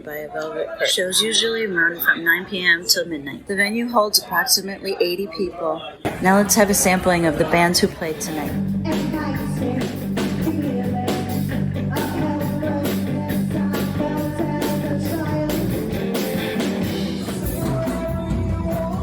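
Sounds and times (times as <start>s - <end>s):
drums steady beat: 6.0s - 19.0s
electric guitar: 6.1s - 19.0s
rock band playing live: 6.1s - 19.0s
person singing: 6.9s - 19.0s.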